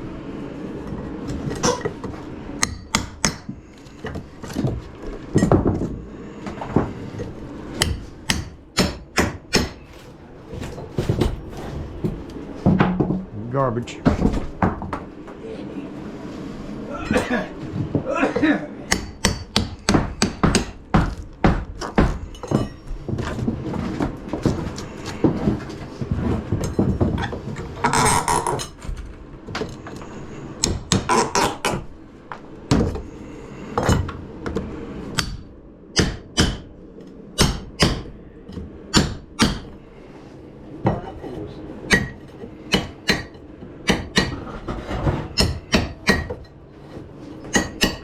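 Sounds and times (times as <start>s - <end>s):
hammer striking wood: 2.6s - 4.8s, 7.8s - 10.0s, 18.9s - 22.7s, 36.0s - 36.7s, 37.4s - 38.1s, 38.9s - 39.7s, 41.9s - 44.4s, 45.4s - 46.4s, 47.5s - 48.0s.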